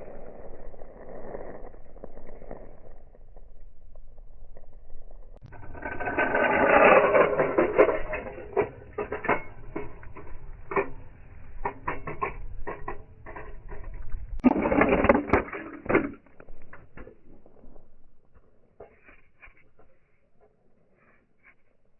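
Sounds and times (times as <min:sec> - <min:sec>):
toy cars crashing and clattering: 0:14.4 - 0:17.3.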